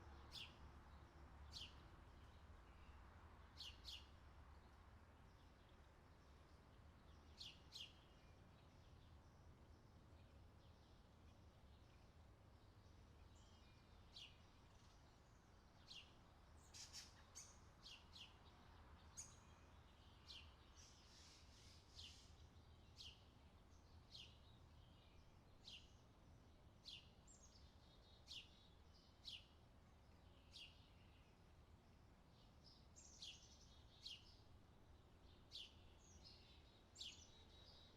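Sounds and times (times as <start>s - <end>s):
bird chirping: 12.6s - 26.0s, 30.2s - 31.4s, 32.3s - 37.9s.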